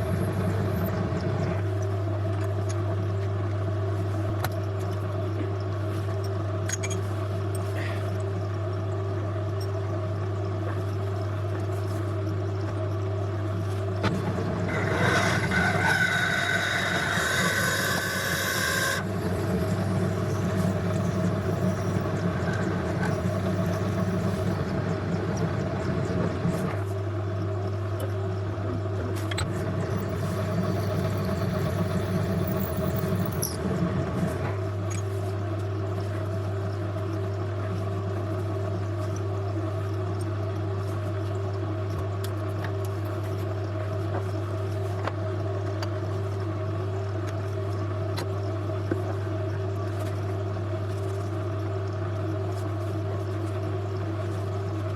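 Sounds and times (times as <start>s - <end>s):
lathe running: 14.1s - 25.4s, 29.6s - 33.6s
high-pitched cutting squeal: 14.7s - 19.0s
cutting tool working metal: 14.7s - 19.1s.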